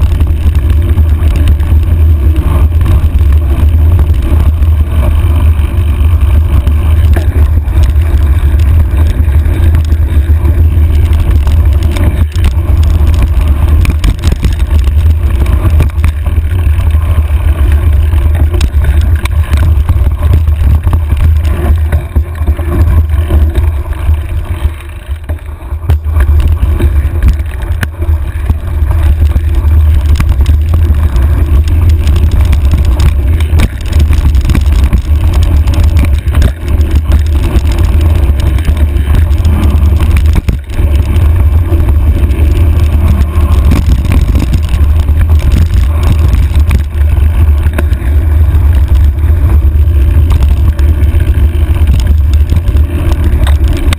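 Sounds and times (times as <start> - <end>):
bike knocks and rattles: 0.0 - 53.9
wind buffeting microphone: 0.0 - 53.9.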